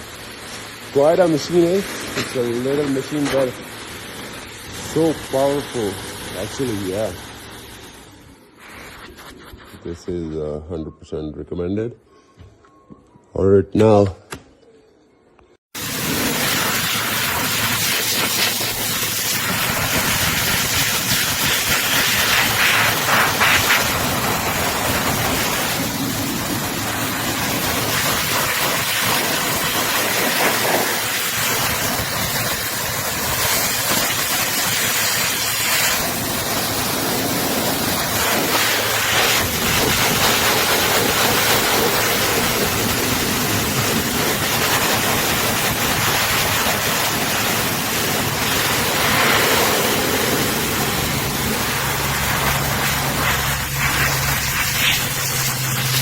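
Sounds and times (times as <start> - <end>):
pet dryer blowing air: 15.8 - 56.0.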